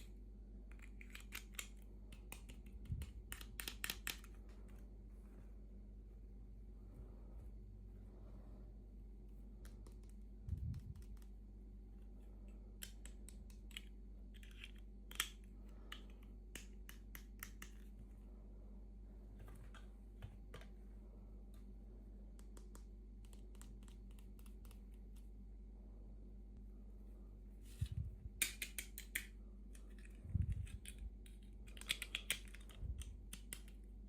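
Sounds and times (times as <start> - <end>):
faint steady hum: 0.0 - 34.0
clicks of plastic toy pieces: 0.7 - 4.4, 12.8 - 17.8, 28.4 - 33.8.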